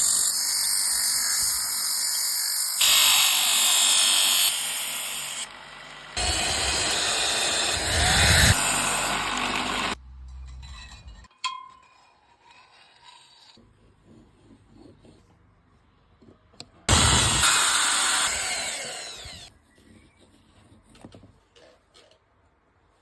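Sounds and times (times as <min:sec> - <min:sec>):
power tool running: 0:00.0 - 0:10.0, 0:16.9 - 0:19.5.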